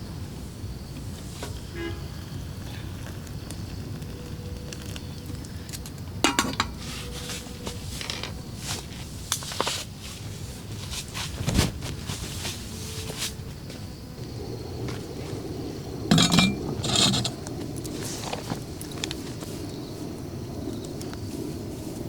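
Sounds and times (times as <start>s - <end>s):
metal cookware clinking: 6.3s - 6.8s, 16.1s - 17.4s.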